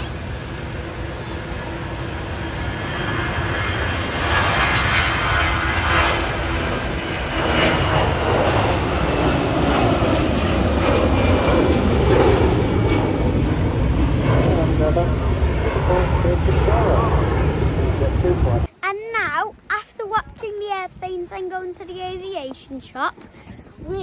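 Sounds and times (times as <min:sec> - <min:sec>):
airliner engines roaring: 0:00.0 - 0:24.0.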